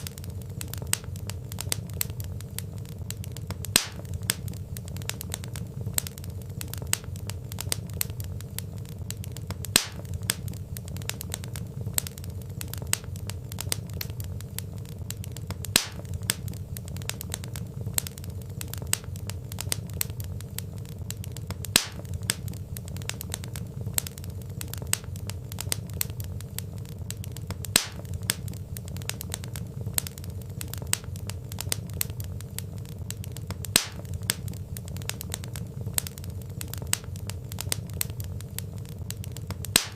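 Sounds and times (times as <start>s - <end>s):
log fire crackling: 0.0s - 39.9s
low fire rumble: 0.0s - 39.9s
sharp fire pop: 3.4s - 8.2s, 9.1s - 14.2s, 15.1s - 18.1s, 21.1s - 26.3s, 27.1s - 32.2s, 33.1s - 38.3s, 39.5s - 39.9s.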